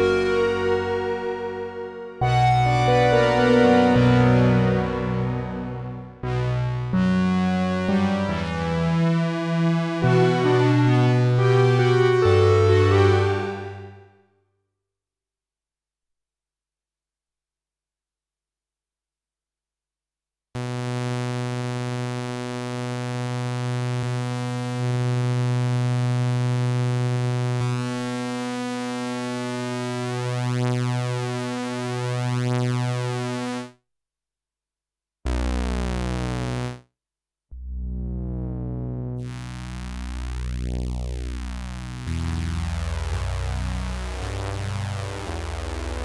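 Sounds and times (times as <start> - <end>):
analog synthesizer sustained note: 0.0 - 8.6, 9.9 - 14.0
synthesizer bass notes: 0.0 - 14.0, 35.3 - 36.8, 37.6 - 46.0.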